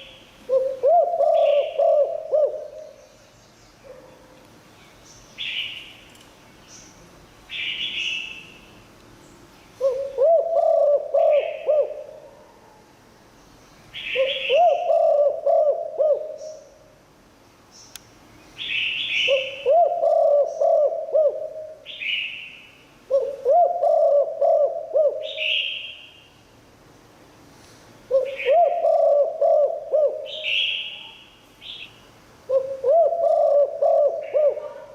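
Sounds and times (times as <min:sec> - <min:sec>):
dove cooing: 0:00.0 - 0:03.0, 0:09.8 - 0:12.6, 0:14.0 - 0:16.7, 0:19.2 - 0:22.0, 0:23.1 - 0:25.8, 0:28.1 - 0:30.9, 0:32.5 - 0:34.9.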